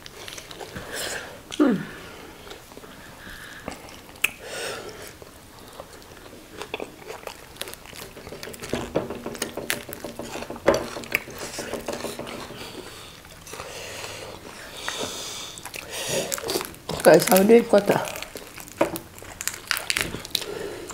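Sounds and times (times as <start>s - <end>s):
chewing and crunching: 0.0s - 1.6s, 2.2s - 20.9s
sharp mouth clicks and smacks: 3.7s - 4.4s.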